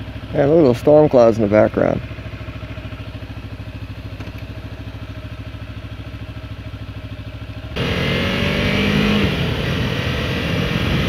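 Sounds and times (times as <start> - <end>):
motorcycle engine idling: 0.0 - 8.1
motorcycle engine accelerating: 0.0 - 11.0.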